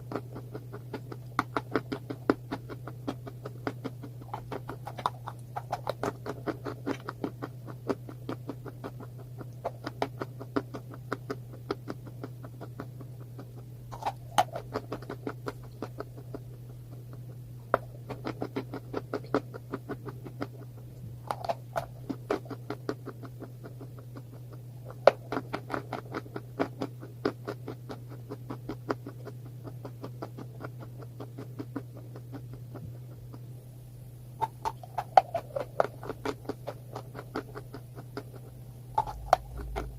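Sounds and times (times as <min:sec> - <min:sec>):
crunchy chewing: 0:00.0 - 0:33.6, 0:34.4 - 0:39.9
low hum: 0:32.0 - 0:39.9.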